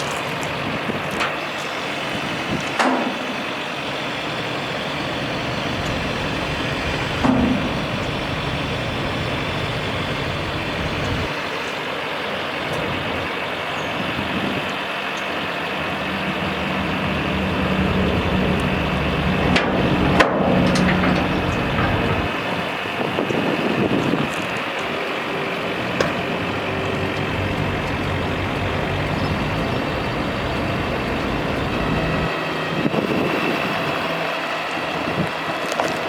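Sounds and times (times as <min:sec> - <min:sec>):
truck engine running: 0:00.0 - 0:36.0
low hum: 0:04.2 - 0:11.3, 0:13.8 - 0:32.3.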